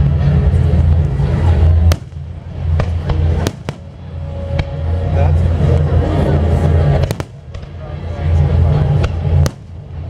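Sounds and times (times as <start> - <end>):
sharp firework cracks: 1.9 - 3.9, 7.0 - 7.8, 9.0 - 9.9
rumbling firework booms: 1.9 - 4.0, 7.0 - 7.8.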